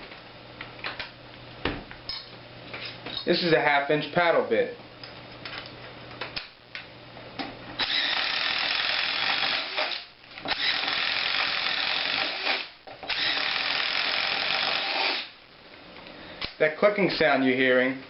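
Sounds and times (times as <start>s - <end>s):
impact driver boring: 7.8s - 15.4s.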